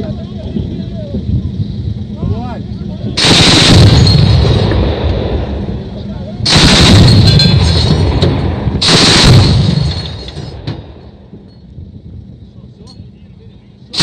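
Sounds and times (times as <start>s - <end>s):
autocannon firing rapid bursts: 3.2s - 5.0s, 6.4s - 10.6s.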